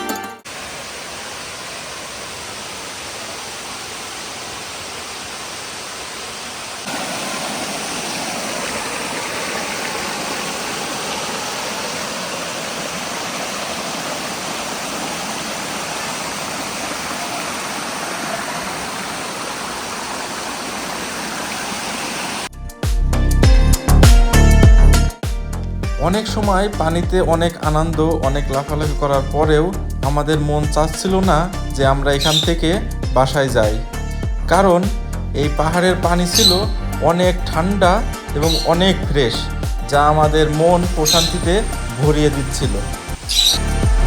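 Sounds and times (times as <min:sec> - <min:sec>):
waterfall rushing: 0:00.4 - 0:22.5, 0:38.4 - 0:39.1, 0:40.2 - 0:44.0.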